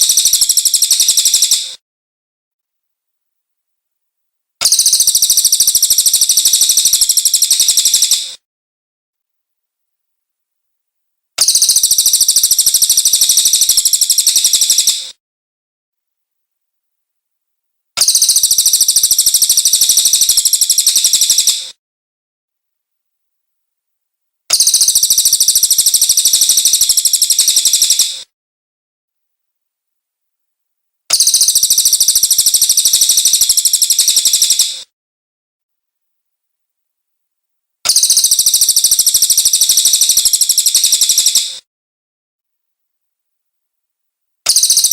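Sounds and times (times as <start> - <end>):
high-pitched bird trill: 0.0 - 1.8, 4.6 - 8.3, 11.4 - 15.2, 18.0 - 21.7, 24.5 - 28.2, 31.1 - 34.8, 37.9 - 41.6, 44.5 - 44.9
bird trilling: 44.5 - 44.9.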